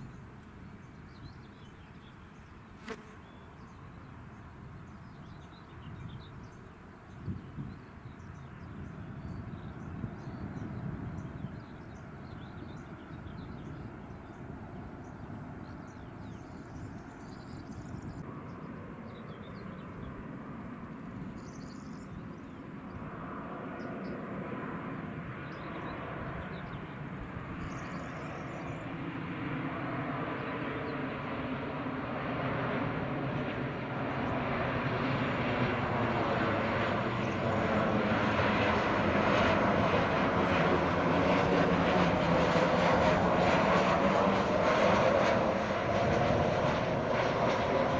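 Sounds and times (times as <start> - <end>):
jet airliner engines: 0.0 - 47.9.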